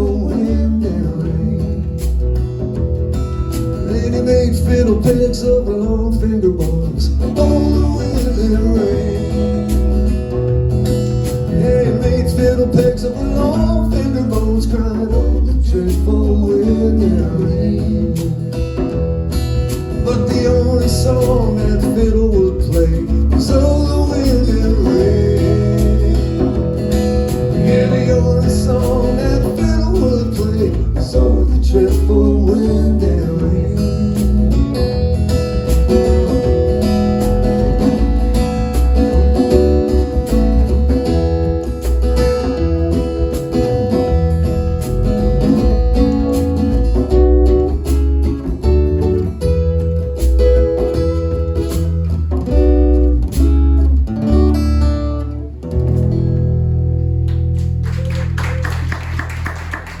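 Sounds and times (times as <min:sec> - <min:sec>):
acoustic guitar strumming: 0:00.0 - 1:00.0
bass line: 0:00.0 - 1:00.0
people clapping: 0:57.2 - 1:00.0.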